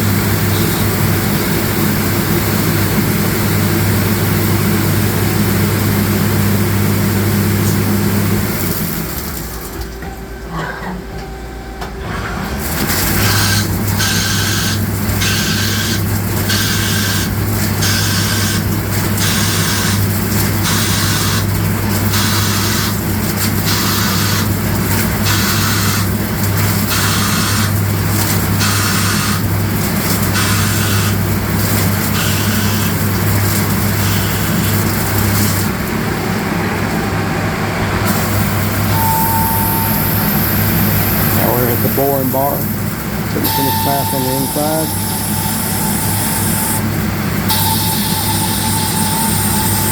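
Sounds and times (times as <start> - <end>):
lathe machine hum: 10.2 - 49.9
pulsing cutting hiss: 38.1 - 49.9.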